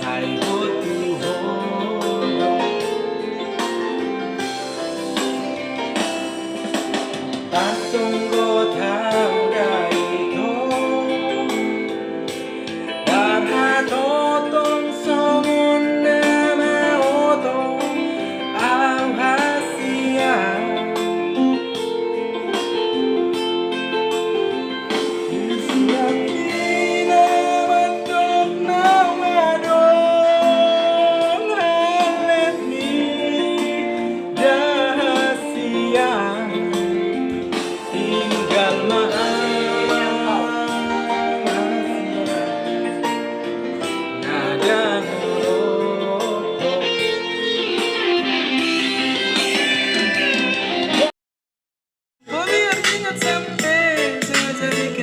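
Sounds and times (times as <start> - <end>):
person singing: 0.0 - 4.8, 7.2 - 23.1, 24.5 - 51.1, 52.2 - 55.0
instrumental accompaniment chords: 0.0 - 51.1, 52.2 - 55.0.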